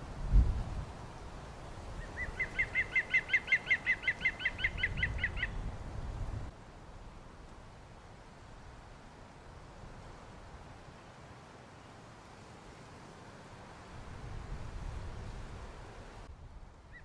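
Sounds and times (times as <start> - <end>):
bird whistled trill: 2.0 - 5.6.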